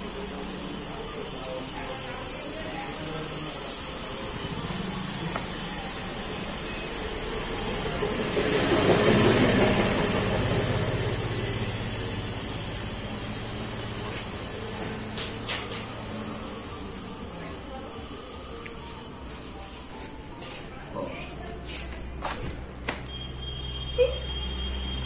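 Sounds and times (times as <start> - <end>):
machinery hiss: 0.0 - 19.6
combine harvester engine hum: 3.7 - 20.4.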